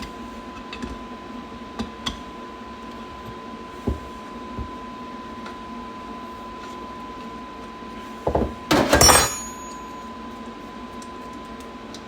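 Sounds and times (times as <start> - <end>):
metal parts and tools clattering: 8.7 - 9.7
ringing metallic clink: 8.7 - 10.0.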